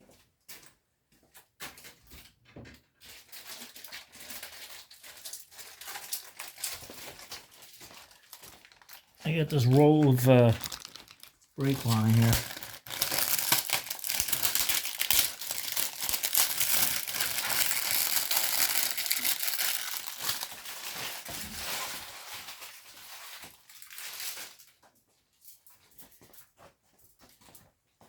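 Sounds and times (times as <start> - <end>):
plastic packaging crinkling: 3.1 - 24.7.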